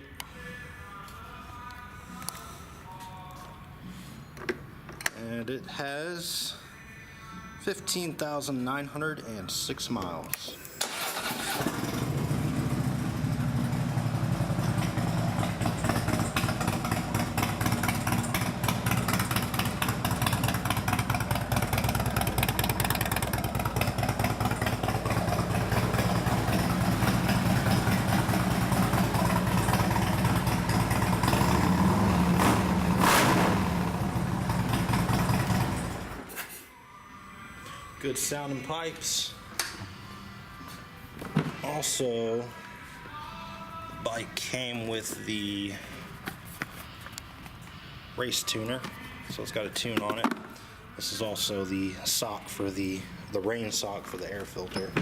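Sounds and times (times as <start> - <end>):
motorcycle engine idling: 11.7 - 36.2.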